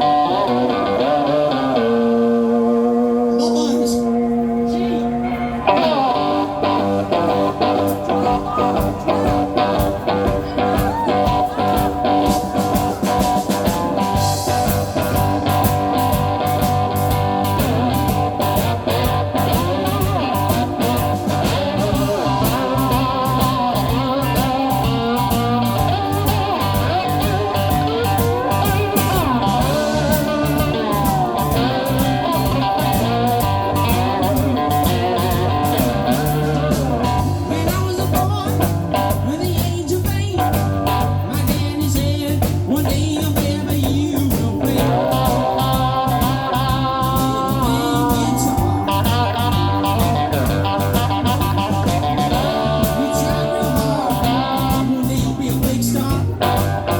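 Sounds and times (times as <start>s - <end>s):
bass: 0.0s - 56.9s
slide guitar: 0.0s - 56.9s
drum beat: 6.6s - 56.9s.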